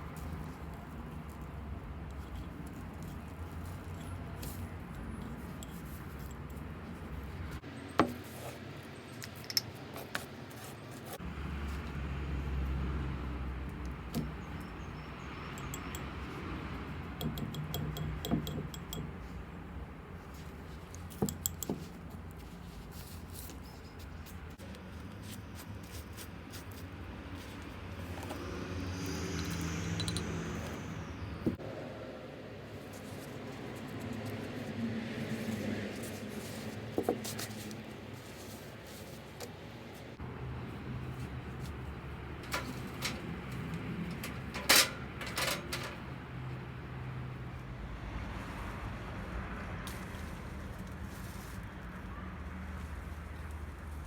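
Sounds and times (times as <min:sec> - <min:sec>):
objects clicking and knocking: 0:29.3 - 0:30.7, 0:42.4 - 0:46.2.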